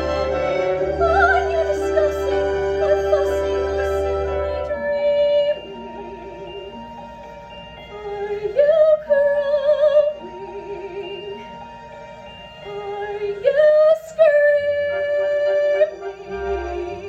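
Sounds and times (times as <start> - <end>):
woman singing soprano: 0.0 - 7.2, 7.9 - 11.7, 12.6 - 17.0
instrumental accompaniment: 0.0 - 17.0.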